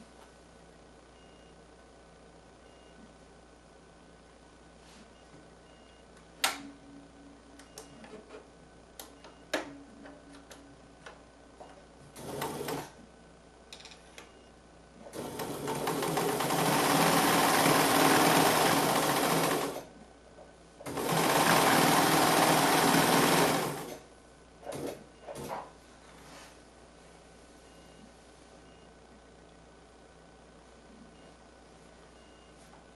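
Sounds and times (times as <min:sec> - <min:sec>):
sewing machine stitching: 0:12.2 - 0:12.9, 0:15.1 - 0:19.9, 0:20.8 - 0:24.0, 0:24.7 - 0:25.6.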